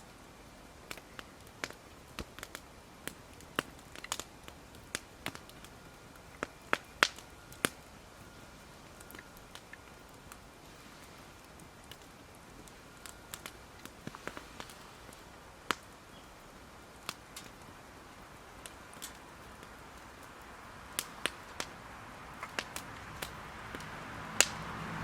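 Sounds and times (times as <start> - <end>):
campfire crackling: 0.0 - 25.0
faint steady hiss: 0.0 - 25.0
loud fire snap: 0.1 - 25.0.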